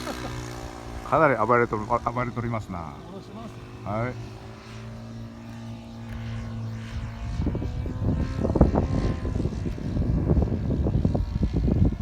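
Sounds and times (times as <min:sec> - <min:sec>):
model plane engine running: 0:00.0 - 0:12.0
wind buffeting microphone: 0:06.0 - 0:12.0.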